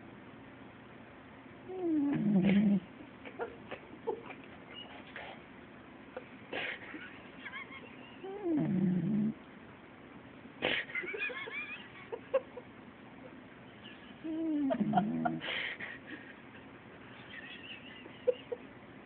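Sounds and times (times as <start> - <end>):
puppy snoring: 1.7 - 2.9, 8.2 - 9.4, 14.2 - 15.5.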